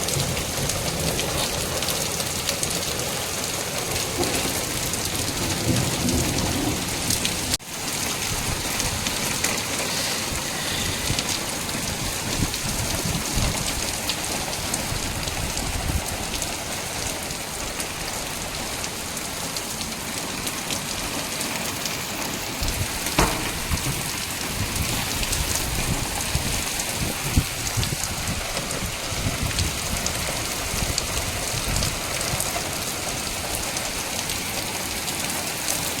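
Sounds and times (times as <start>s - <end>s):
rain and hail falling: 0.0s - 36.0s
loud single knock: 23.2s - 24.0s.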